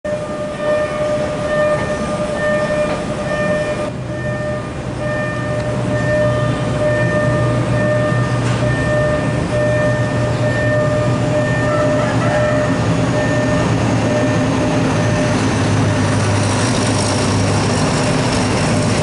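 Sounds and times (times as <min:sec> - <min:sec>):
train low hum: 0:00.0 - 0:19.0
high-pitched tone: 0:00.1 - 0:16.2.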